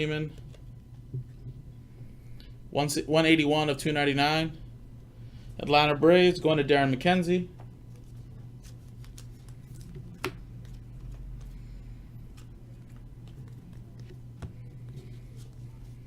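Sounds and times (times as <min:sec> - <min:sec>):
steady low hum: 0:00.0 - 0:16.0
cards being flipped by hand: 0:07.9 - 0:11.6, 0:12.3 - 0:16.0.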